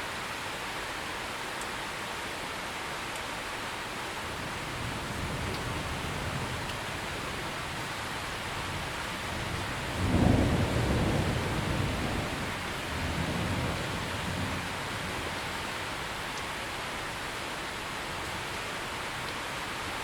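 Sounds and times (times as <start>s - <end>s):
heavy rain: 0.0s - 20.0s
thunder rumbling: 4.4s - 15.8s.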